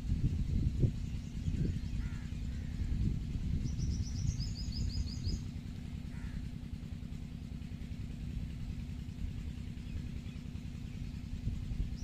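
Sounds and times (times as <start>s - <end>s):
low outdoor rumble: 0.0s - 12.0s
small bird chirping: 0.8s - 5.6s, 9.4s - 12.0s.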